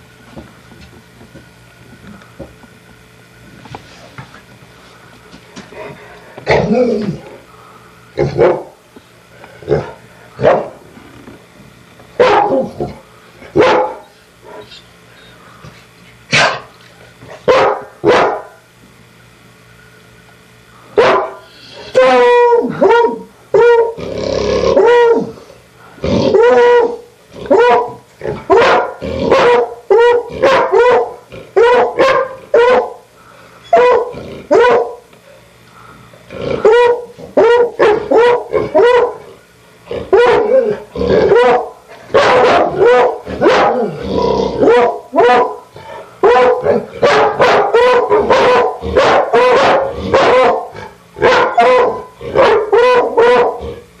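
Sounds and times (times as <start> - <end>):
dogs barking: 8.2 - 8.8, 9.7 - 10.8, 12.2 - 14.6, 16.3 - 16.7, 17.4 - 18.6, 21.0 - 24.0, 24.8 - 25.3, 26.3 - 33.0, 33.7 - 35.1, 36.5 - 39.3, 40.1 - 44.0, 44.6 - 53.8.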